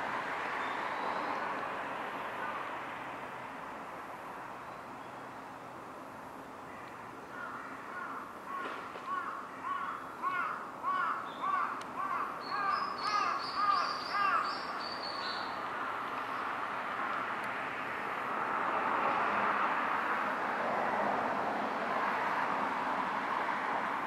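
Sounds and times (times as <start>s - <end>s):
steady background noise: 0.0s - 24.0s
higher-pitched bird calls: 9.2s - 15.6s.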